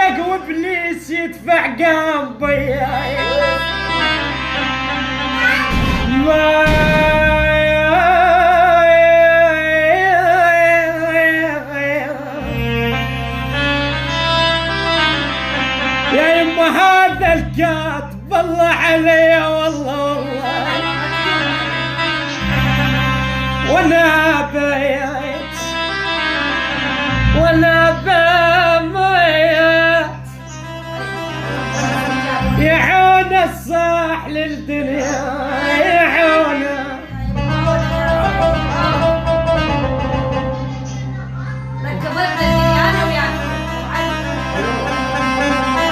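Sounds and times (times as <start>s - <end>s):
man singing ornamented lament: 0.0s - 14.2s, 15.6s - 40.6s, 42.9s - 45.9s
instrumental accompaniment with low drone: 2.5s - 45.9s
steady low drone: 34.8s - 41.1s.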